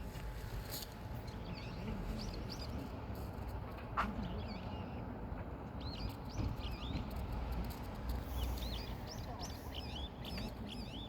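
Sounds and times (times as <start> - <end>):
small birds chirping: 5.8 - 11.0.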